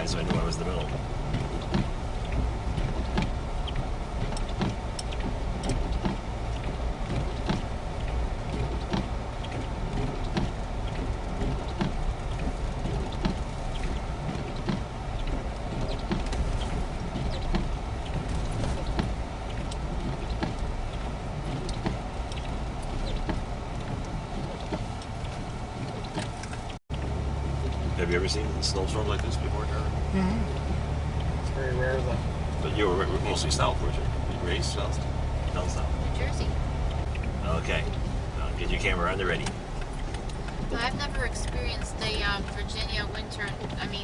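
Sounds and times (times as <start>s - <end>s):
engine and road rumble: 0.0s - 44.0s.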